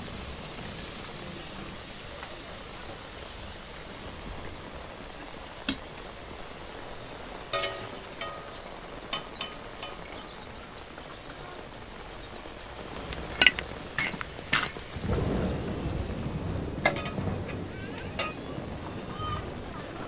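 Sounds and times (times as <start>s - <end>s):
low thunder roll: 0.0s - 9.1s, 11.6s - 20.0s
steady rain: 0.0s - 20.0s
metal spatula clinking on plate: 7.5s - 10.2s.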